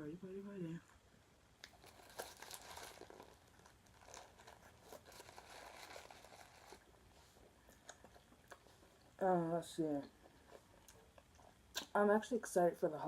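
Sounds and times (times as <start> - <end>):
paper wrapping crinkling: 1.6 - 7.4.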